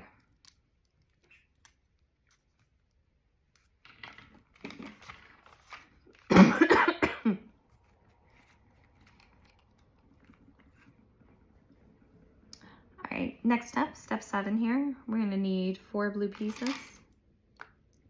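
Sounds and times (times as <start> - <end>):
person coughing: 6.3 - 7.5.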